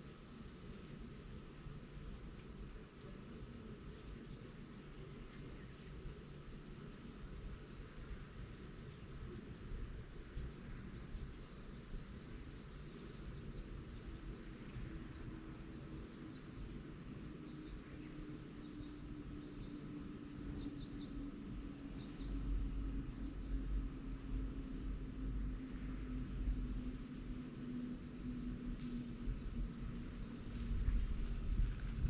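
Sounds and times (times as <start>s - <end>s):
distant engine drone: 0.0s - 32.0s
low rumble: 28.1s - 32.0s.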